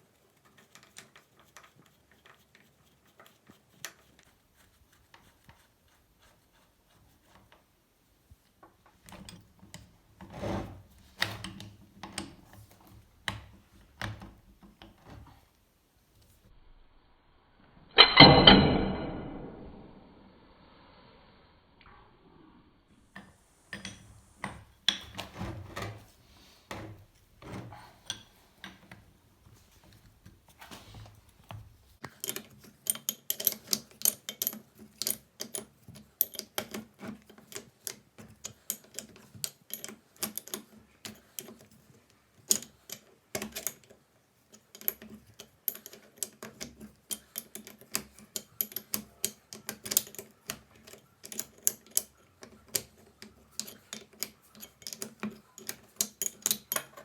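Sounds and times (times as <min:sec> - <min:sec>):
metal clicks and taps on vise: 0:31.5 - 0:41.8, 0:44.5 - 0:57.0.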